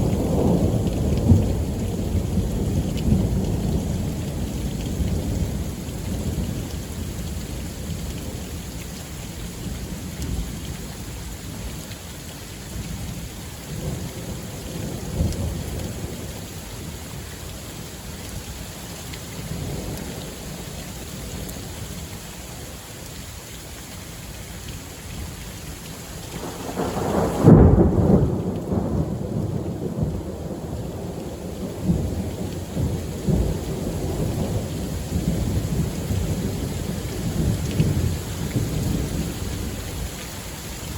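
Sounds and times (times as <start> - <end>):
rain falling: 0.0 - 40.9
thunder rumbling: 26.3 - 40.1.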